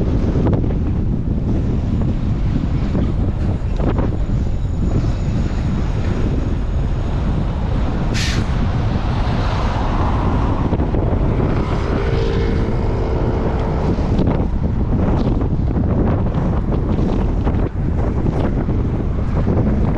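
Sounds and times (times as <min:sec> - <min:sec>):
road traffic: 0:00.0 - 0:19.9
steady droning tone: 0:00.0 - 0:19.9
wind buffeting microphone: 0:00.0 - 0:19.9
short sharp hiss: 0:08.2 - 0:08.6.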